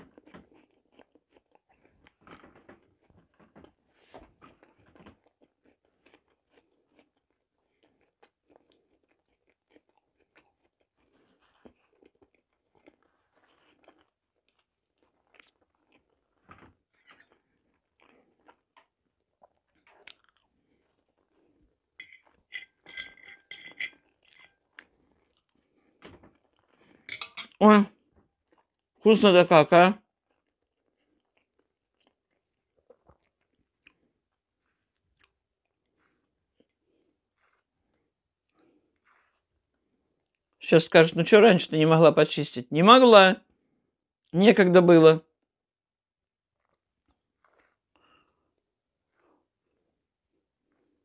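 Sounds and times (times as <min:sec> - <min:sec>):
wet chewing mouth noises: 0:17.0 - 0:21.6, 0:30.2 - 0:40.6, 0:46.6 - 0:49.9
fork clinking on plates: 0:22.0 - 0:24.6, 0:27.1 - 0:27.6.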